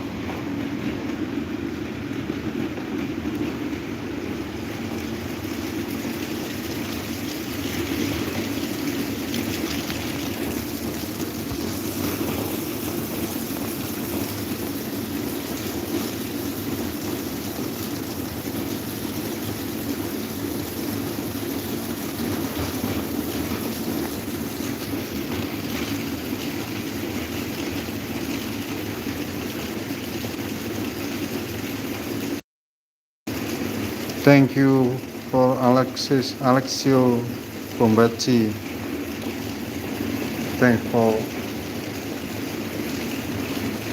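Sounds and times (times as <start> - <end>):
electric fan whooshing: 0.0 - 17.6.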